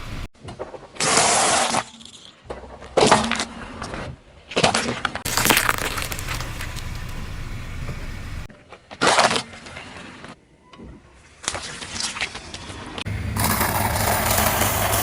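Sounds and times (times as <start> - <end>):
tyre crushing crunchy objects: 4.5 - 8.2.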